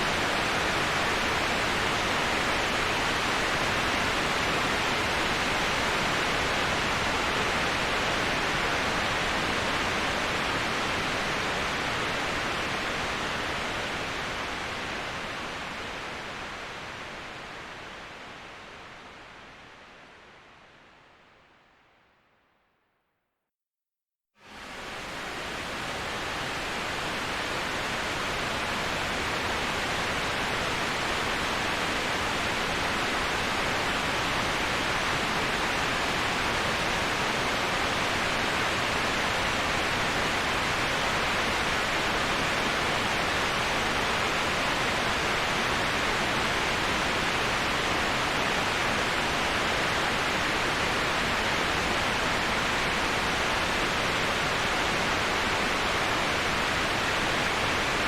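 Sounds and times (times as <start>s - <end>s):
waterfall rushing: 24.5s - 58.0s.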